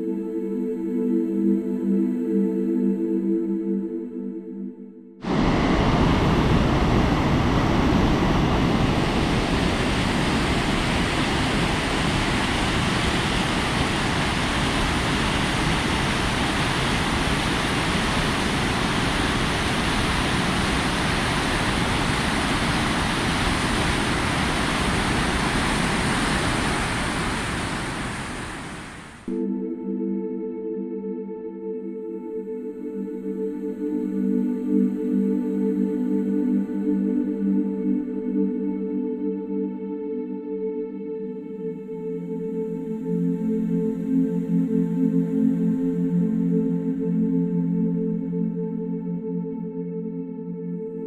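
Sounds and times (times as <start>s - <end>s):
wind on microphone: 5.2s - 29.3s
snowmobile engine roar: 5.3s - 29.3s.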